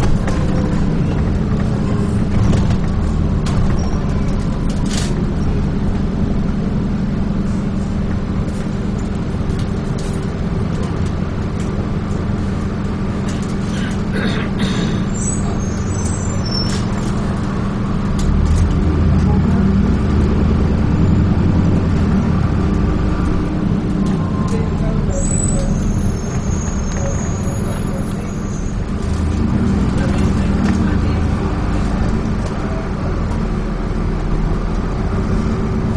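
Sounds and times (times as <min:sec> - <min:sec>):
bus diesel engine running: 0:00.0 - 0:35.9
rattles and clicks from bus body: 0:00.0 - 0:35.9
brief high squeal: 0:25.1 - 0:28.8.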